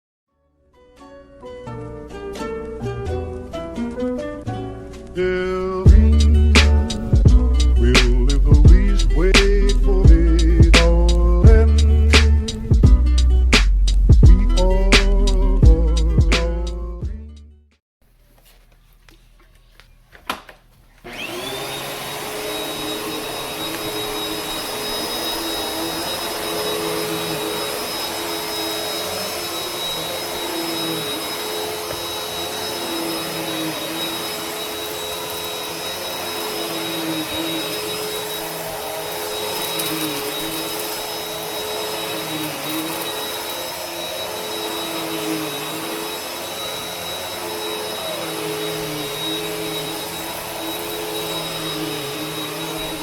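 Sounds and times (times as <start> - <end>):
vacuum cleaner running: 5.9 - 7.4, 21.0 - 53.0.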